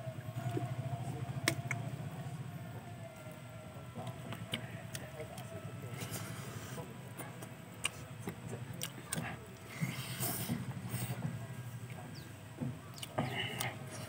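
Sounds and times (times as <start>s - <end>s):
chewing and crunching food: 3.2s - 14.0s
fingers picking at food: 12.9s - 14.0s.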